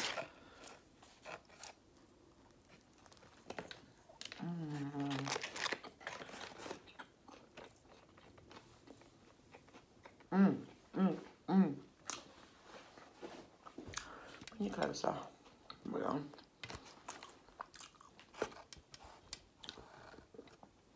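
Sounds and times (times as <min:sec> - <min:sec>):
crunchy chewing: 0:00.0 - 0:10.3, 0:16.6 - 0:20.8
person humming: 0:04.4 - 0:05.4.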